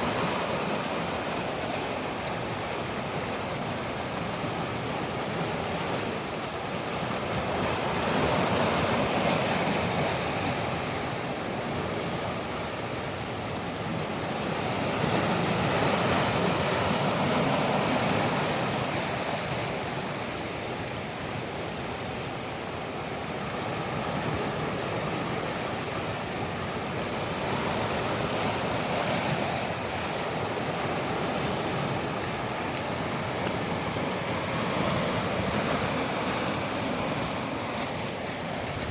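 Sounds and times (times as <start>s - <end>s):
ocean waves washing ashore: 0.0s - 38.9s
wind blowing: 22.6s - 38.9s.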